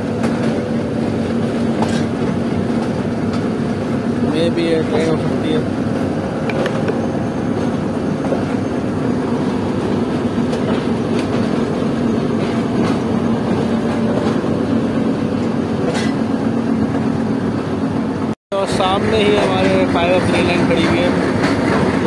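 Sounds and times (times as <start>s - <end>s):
wheels clicking over rail joints: 0.0s - 8.7s, 9.4s - 14.6s, 15.3s - 17.1s
train coach rumbling on rails: 0.0s - 22.0s.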